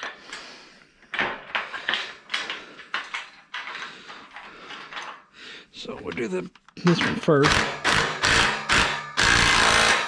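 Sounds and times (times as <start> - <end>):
metal hardware clicks and knocks: 0.0 - 0.4, 1.0 - 5.2.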